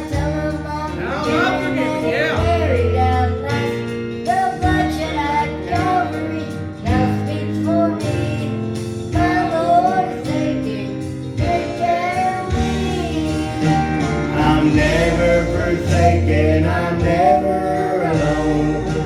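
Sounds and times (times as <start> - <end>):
bass notes: 0.0 - 19.0
strummed guitar: 0.0 - 19.0.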